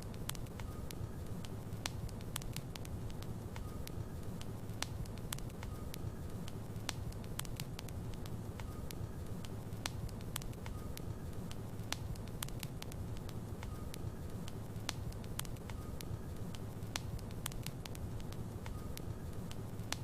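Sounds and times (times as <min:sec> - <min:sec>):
fire crackling and popping: 0:00.0 - 0:20.0
low rumble of flames: 0:00.0 - 0:20.0.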